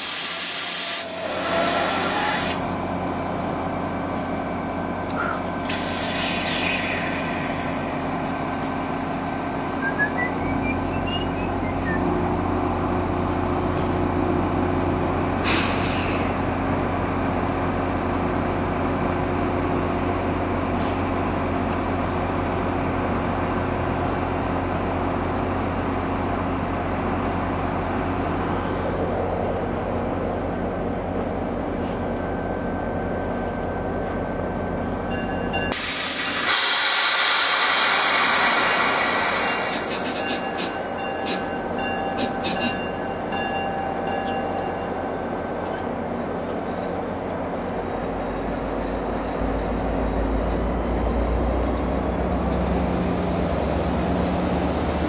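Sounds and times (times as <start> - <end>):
loud hiss of air: 0.0 - 2.6, 5.7 - 9.7, 15.4 - 16.4, 35.7 - 40.0, 52.7 - 55.0
train low hum and rumble: 0.0 - 55.0.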